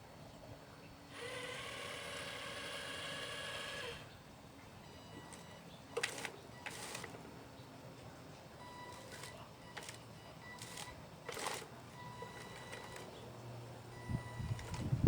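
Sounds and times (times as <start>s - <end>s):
electric motor whining: 1.1s - 4.1s.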